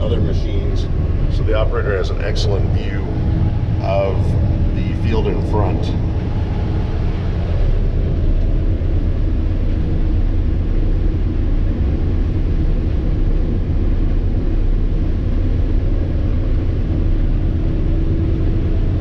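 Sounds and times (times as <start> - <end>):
combine harvester engine drone: 0.0 - 19.0.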